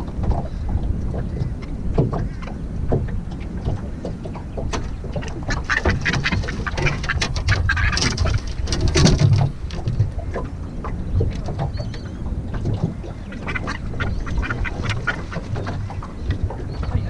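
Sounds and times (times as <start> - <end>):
bird quacking calls: 5.2 - 8.5, 13.0 - 16.0.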